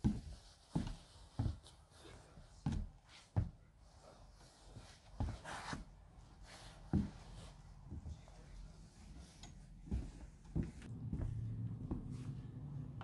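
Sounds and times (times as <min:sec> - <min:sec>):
footsteps on wooden floor: 0:00.0 - 0:01.8, 0:02.6 - 0:03.6, 0:05.2 - 0:05.9, 0:06.9 - 0:08.2, 0:09.8 - 0:12.4
shoe scuff: 0:04.7 - 0:07.4.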